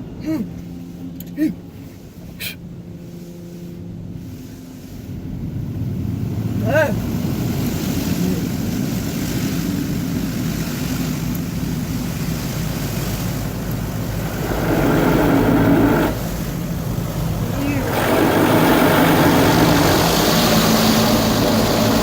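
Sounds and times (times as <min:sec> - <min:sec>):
low hum: 0:00.0 - 0:22.0
water spray rushing: 0:04.8 - 0:22.0.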